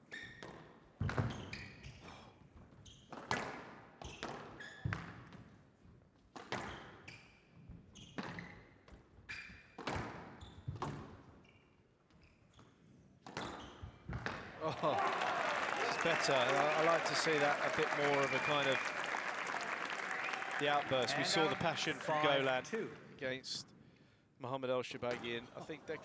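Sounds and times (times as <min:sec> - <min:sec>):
court shoes squeaking: 0:00.0 - 0:03.4, 0:06.4 - 0:14.4.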